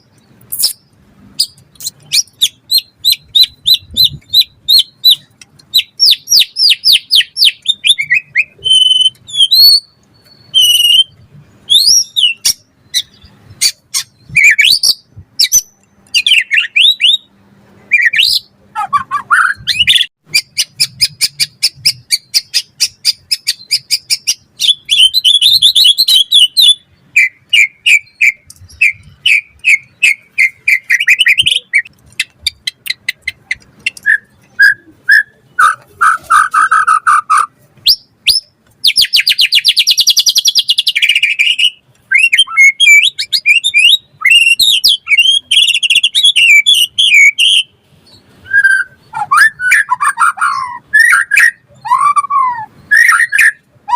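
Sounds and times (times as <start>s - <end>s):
bird singing varied song: 0.0s - 53.9s.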